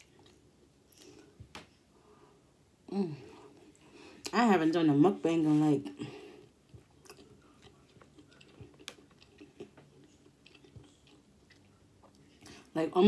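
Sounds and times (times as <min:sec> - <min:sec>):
person chewing food: 0:00.0 - 0:01.9, 0:06.1 - 0:12.7.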